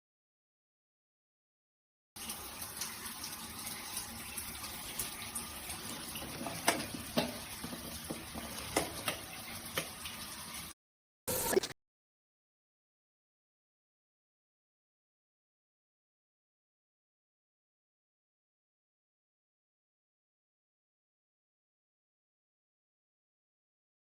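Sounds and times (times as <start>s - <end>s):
sharp drips and taps: 2.2s - 10.5s
water running and splashing: 2.2s - 11.7s.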